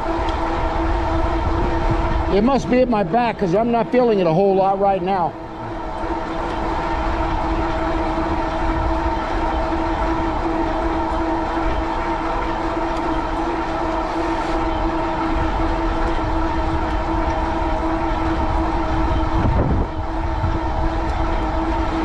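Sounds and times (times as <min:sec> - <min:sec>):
wind on microphone: 0:00.0 - 0:03.4, 0:14.8 - 0:22.0
electric motor whine: 0:00.0 - 0:22.0
tyres rumbling: 0:00.0 - 0:22.0.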